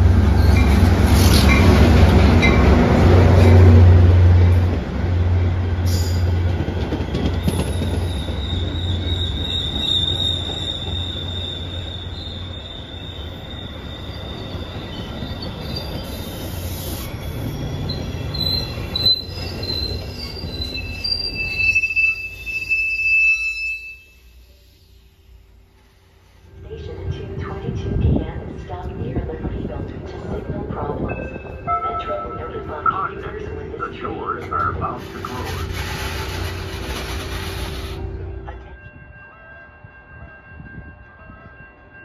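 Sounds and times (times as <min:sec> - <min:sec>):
diesel train engine hum: 0:00.0 - 0:22.9, 0:24.1 - 0:39.1
wheel and brake squeal: 0:06.9 - 0:25.0, 0:35.2 - 0:38.0.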